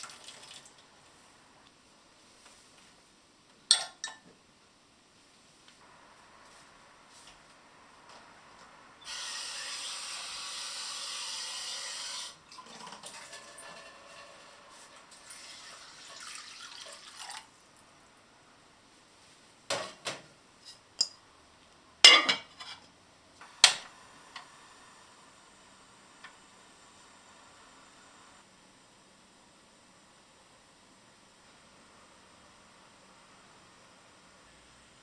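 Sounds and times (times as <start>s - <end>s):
water running from a tap: 0.0s - 0.8s, 9.1s - 17.6s
dishes clinking: 3.7s - 4.3s, 22.0s - 22.8s.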